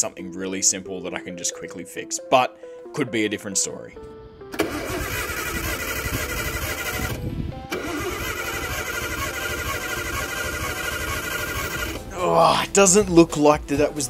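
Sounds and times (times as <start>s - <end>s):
engine cranking on starter: 4.5s - 12.1s.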